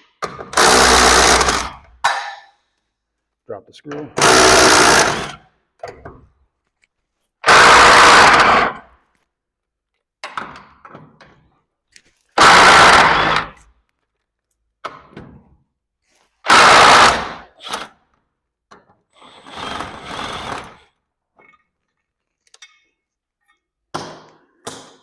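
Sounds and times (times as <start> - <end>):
cordless drill driving screws: 0.5 - 1.8, 4.2 - 5.4, 7.4 - 8.8, 12.4 - 13.6, 16.5 - 18.0, 19.2 - 20.9.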